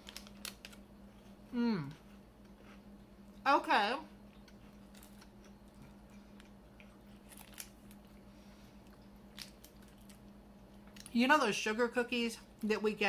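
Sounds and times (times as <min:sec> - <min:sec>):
low steady hum: 0:00.0 - 0:13.0
chewing wafer bar: 0:04.2 - 0:08.2.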